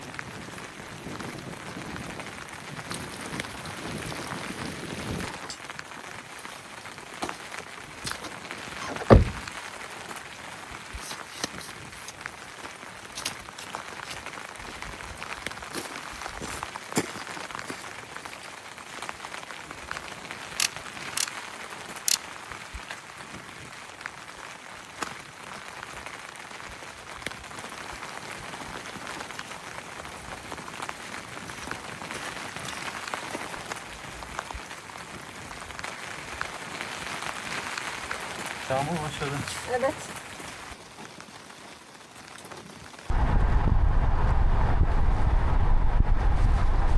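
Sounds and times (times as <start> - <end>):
steady rain falling: 0.0 - 46.9
sharp thump: 8.8 - 9.4.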